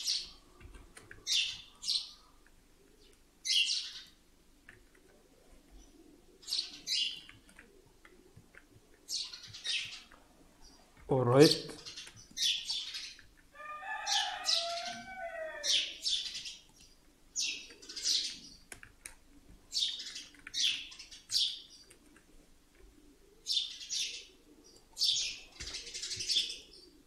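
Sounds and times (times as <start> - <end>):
bird chirping: 1.2 - 2.3, 2.9 - 4.2, 5.7 - 7.7, 9.0 - 18.8, 19.7 - 22.0, 23.4 - 27.0.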